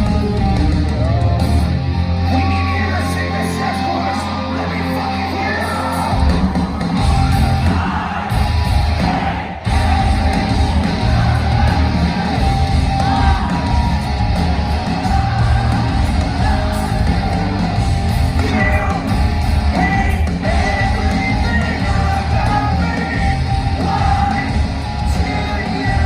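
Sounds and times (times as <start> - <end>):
electric guitars: 0.0 - 26.0
hard rock band playing live: 0.0 - 26.0
person singing: 14.6 - 26.0.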